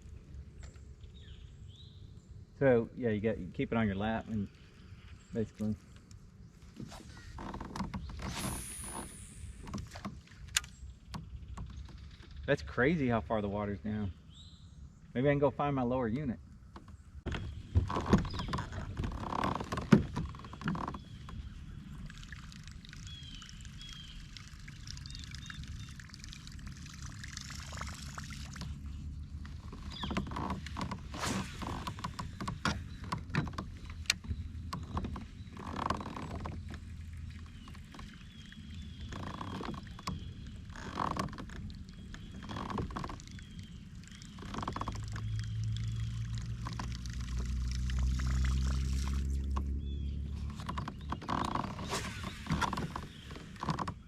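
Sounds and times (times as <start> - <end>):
paddle splashing in water: 6.7 - 12.0, 17.3 - 54.0.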